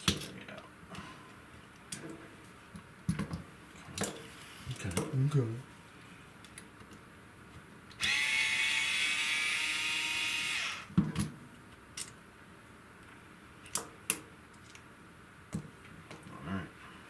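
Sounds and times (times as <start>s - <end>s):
power drill whining: 8.0s - 10.9s.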